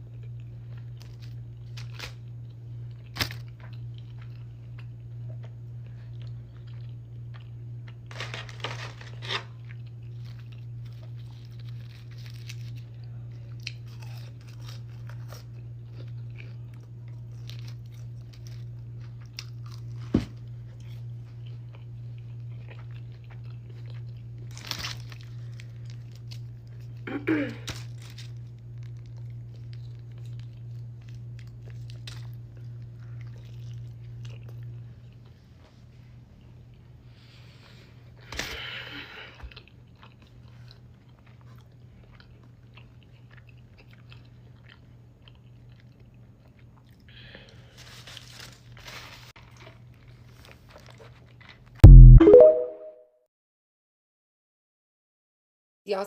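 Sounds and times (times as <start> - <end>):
chewing and crunching food: 0.0 - 51.8.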